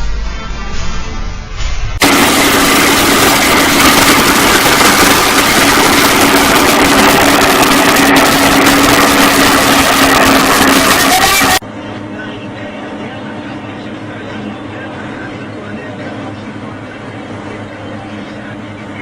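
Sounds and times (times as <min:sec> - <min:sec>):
high whine: 0:00.0 - 0:19.0
large machine engine running: 0:02.0 - 0:19.0.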